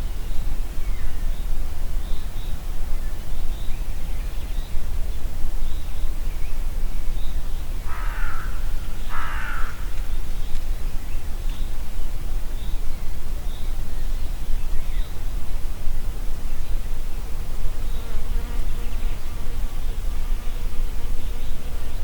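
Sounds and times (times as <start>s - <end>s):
crow cawing: 7.9s - 9.9s.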